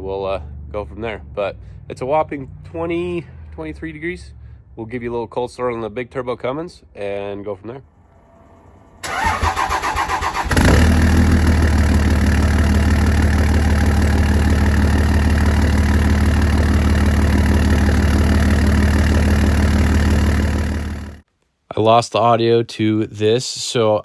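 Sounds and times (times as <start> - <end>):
diesel engine idling: 8.3 - 21.2
starter motor cranking: 9.0 - 21.2.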